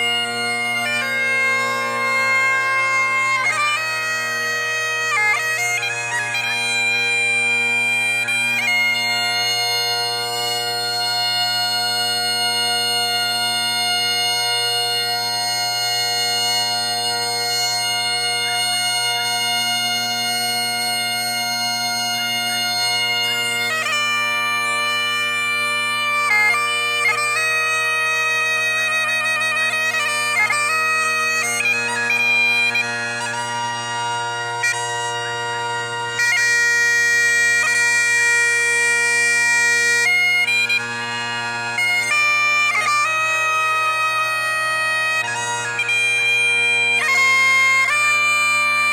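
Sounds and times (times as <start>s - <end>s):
bagpipe chanter melody: 0.0s - 48.9s
bagpipe drones: 0.0s - 48.9s.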